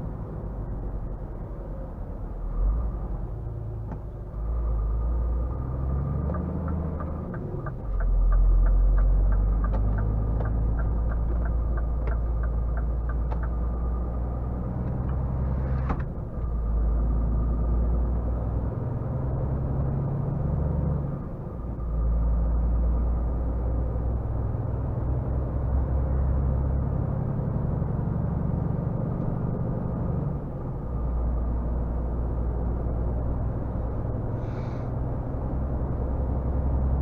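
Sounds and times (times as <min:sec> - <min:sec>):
truck diesel engine: 0:00.0 - 0:37.0
turn signal clicking: 0:06.3 - 0:13.8
short hiss: 0:34.4 - 0:34.9.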